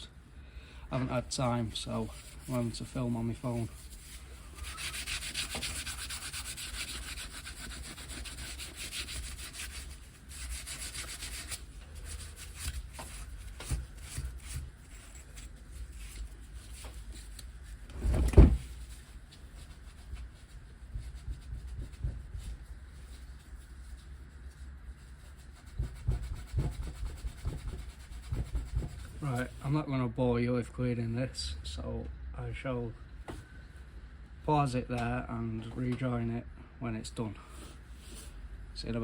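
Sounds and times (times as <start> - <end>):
scrubbing on metal engine cases: 1.1 - 18.0.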